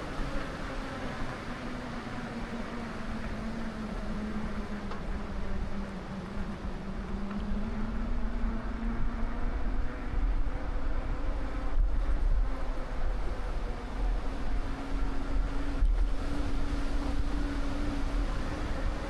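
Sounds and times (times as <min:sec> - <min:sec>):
wind gusting on microphone: 0:00.0 - 0:19.0.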